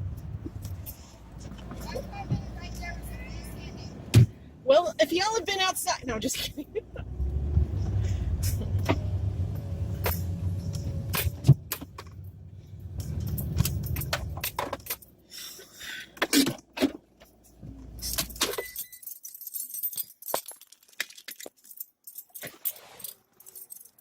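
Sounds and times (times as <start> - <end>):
car engine rumbling: 0.0 - 18.7
keys jangling: 10.0 - 15.2, 17.2 - 24.0.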